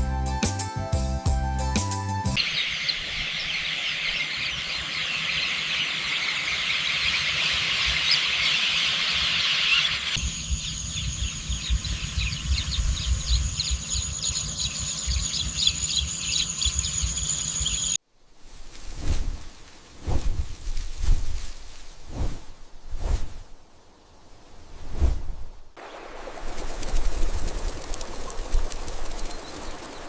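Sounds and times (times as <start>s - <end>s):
many small birds chirping: 2.4s - 18.0s, 26.5s - 30.0s
high insect trill: 4.6s - 18.0s.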